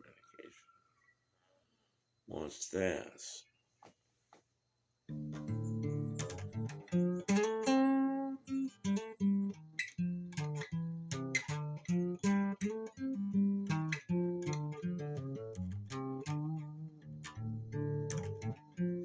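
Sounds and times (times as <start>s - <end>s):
acoustic guitar blues riff: 5.1s - 19.0s.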